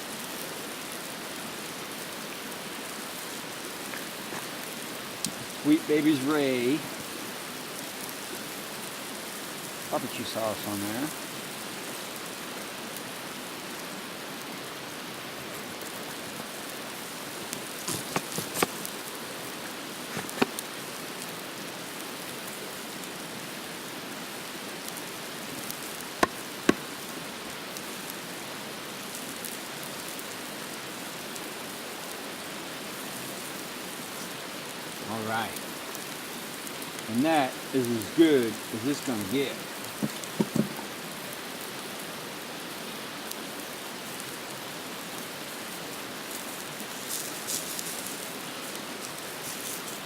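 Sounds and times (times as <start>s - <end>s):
steady hiss: 0.0s - 50.0s
sharp clicks and pops: 17.8s - 19.0s, 20.1s - 20.6s, 26.2s - 26.9s, 40.0s - 40.9s.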